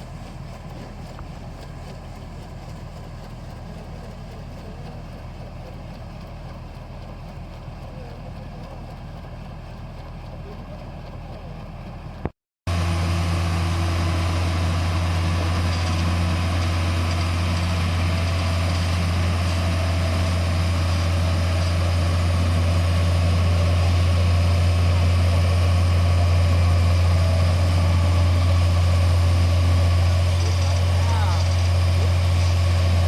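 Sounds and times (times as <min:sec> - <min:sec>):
heavy engine humming: 0:00.0 - 0:33.0.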